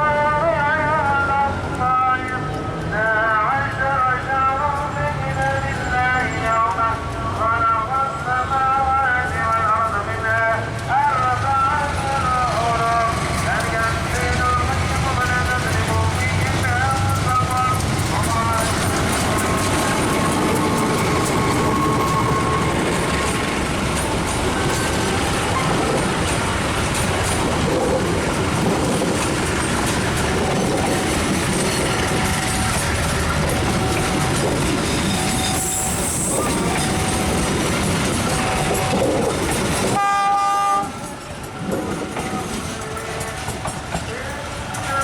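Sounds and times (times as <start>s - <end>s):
train rumbling on rails: 0.0s - 45.0s
train horn blast: 40.0s - 41.1s.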